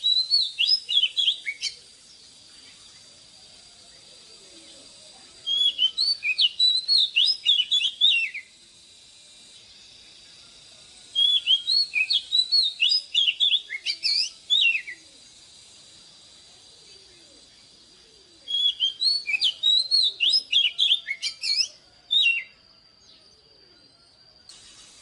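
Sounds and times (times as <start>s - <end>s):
magpie-robin singing whistled notes: 0.0s - 1.8s, 5.4s - 8.6s, 11.2s - 15.0s, 18.4s - 22.6s.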